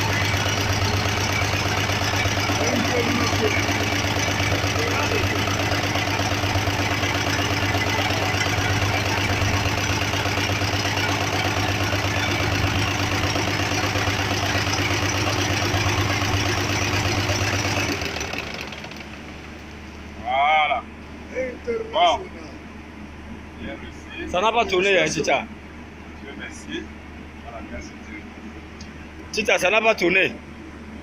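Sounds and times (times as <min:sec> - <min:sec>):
car engine idling: 0:00.0 - 0:22.6.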